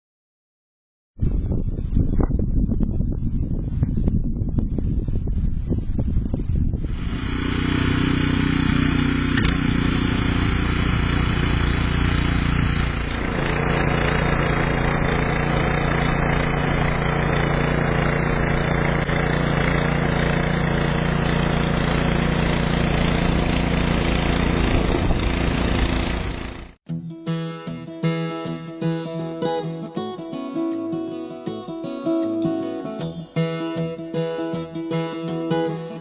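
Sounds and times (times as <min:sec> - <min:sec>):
engine running steadily: 0:05.8 - 0:26.8.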